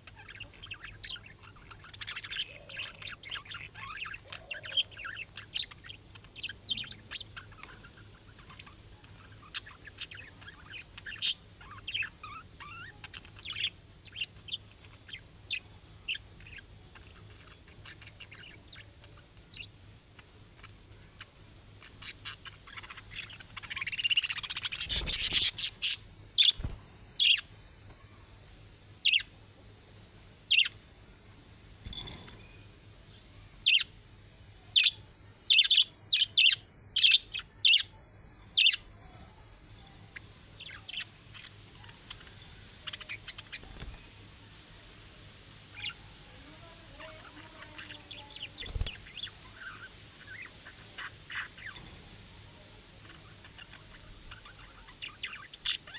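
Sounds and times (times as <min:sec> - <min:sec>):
budgerigars chirping: 0:00.0 - 0:20.8, 0:21.7 - 0:27.4, 0:30.5 - 0:30.7, 0:33.7 - 0:33.9, 0:34.8 - 0:37.9, 0:40.1 - 0:44.0, 0:45.7 - 0:46.0, 0:46.6 - 0:51.8, 0:53.0 - 0:55.9.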